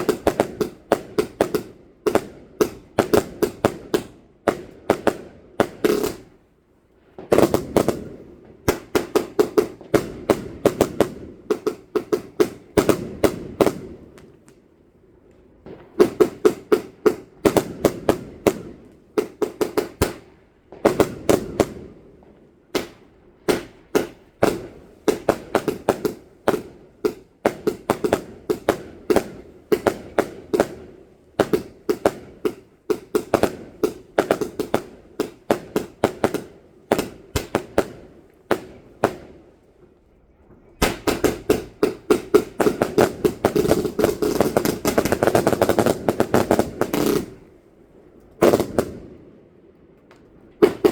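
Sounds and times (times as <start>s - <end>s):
fireworks cracking and banging: 0.0s - 6.4s, 7.1s - 14.7s, 15.3s - 47.6s, 48.2s - 50.9s.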